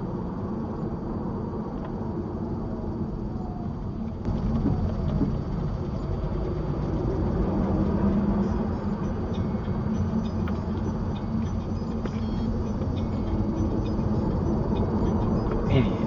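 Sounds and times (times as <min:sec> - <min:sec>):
road noise: 0:00.0 - 0:16.0
vehicle engine rumble: 0:00.0 - 0:16.0.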